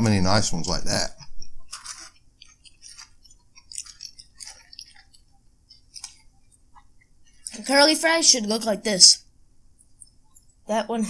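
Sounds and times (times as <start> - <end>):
person chewing food: 1.6 - 7.5.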